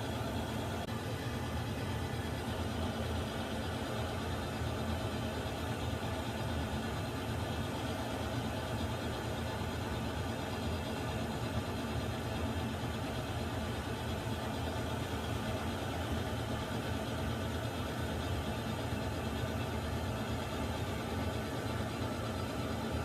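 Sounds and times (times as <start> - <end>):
water heater rumbling and hissing: 0.0 - 23.0.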